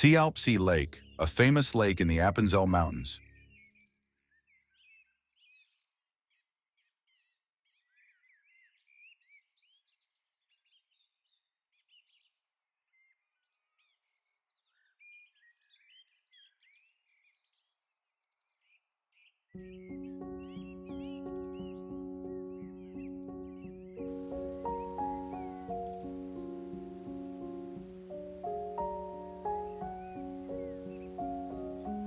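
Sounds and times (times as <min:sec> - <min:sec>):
music: 0:00.0 - 0:03.6, 0:19.6 - 0:32.0
small birds chirping: 0:07.0 - 0:32.0
soft hiss: 0:24.1 - 0:32.0.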